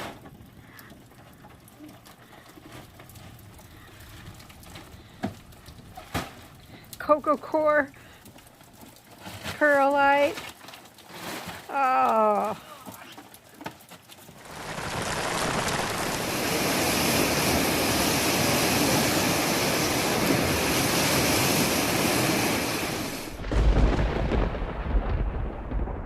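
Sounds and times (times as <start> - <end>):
heavy rain pouring: 14.3 - 26.0.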